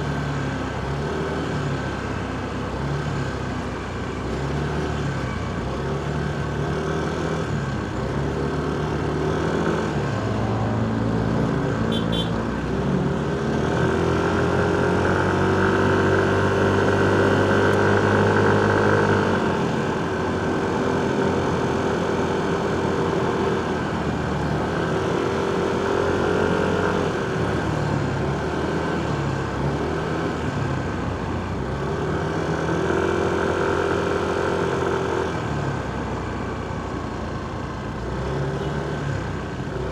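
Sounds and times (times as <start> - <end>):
motorcycle engine revving: 13.2 - 30.6.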